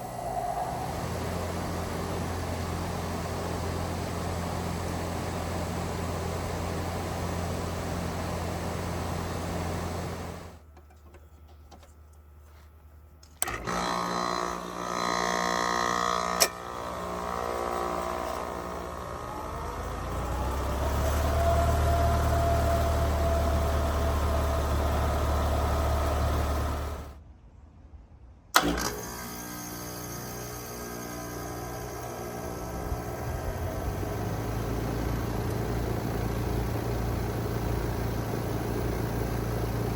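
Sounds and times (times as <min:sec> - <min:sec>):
motor whine: 0:00.0 - 0:10.6, 0:13.4 - 0:27.2, 0:28.6 - 0:39.9
loud relay clicks: 0:16.3 - 0:16.7, 0:28.6 - 0:29.2.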